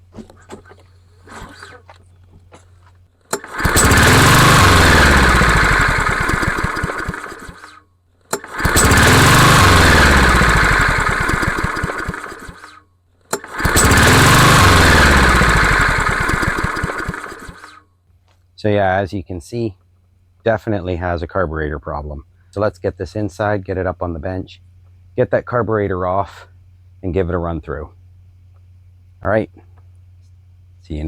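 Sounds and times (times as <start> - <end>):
mower engine pull-started: 0.0 - 17.8.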